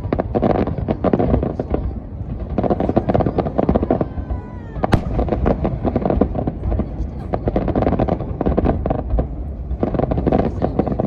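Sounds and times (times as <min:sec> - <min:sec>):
fireworks bursting and crackling: 0:00.0 - 0:11.0.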